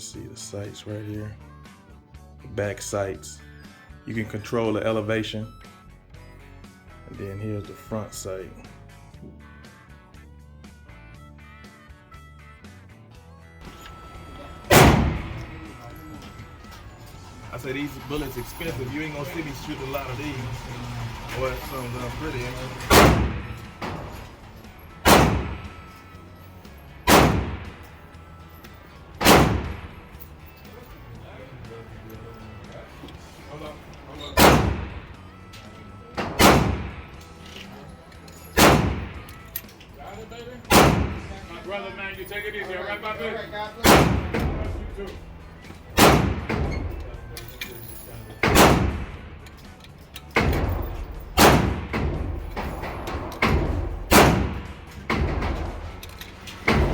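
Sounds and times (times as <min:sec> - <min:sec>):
gunshots with echo: 0:14.6 - 0:17.0, 0:18.0 - 0:26.2, 0:26.9 - 0:28.0, 0:28.7 - 0:31.2, 0:34.4 - 0:35.3, 0:36.2 - 0:37.2, 0:38.6 - 0:39.3, 0:40.7 - 0:41.5, 0:43.8 - 0:45.2, 0:45.9 - 0:47.3, 0:48.3 - 0:49.4, 0:50.4 - 0:56.9.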